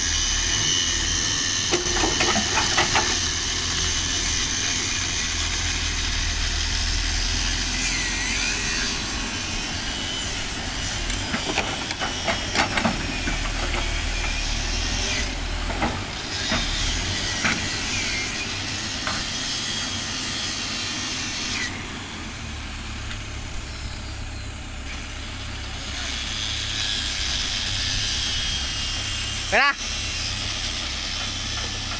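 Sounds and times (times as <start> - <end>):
backhoe diesel engine droning: 0.0 - 31.9
metal clanks: 1.7 - 3.3.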